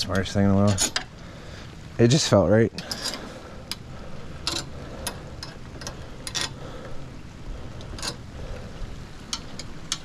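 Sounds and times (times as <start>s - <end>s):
low background rumble: 0.0s - 10.0s
wrench clicking on metal: 4.4s - 6.6s.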